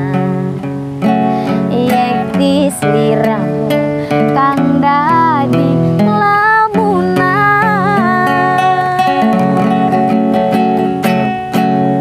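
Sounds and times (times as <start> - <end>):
woman singing: 0.0 - 10.6
strummed acoustic guitar: 0.0 - 12.0.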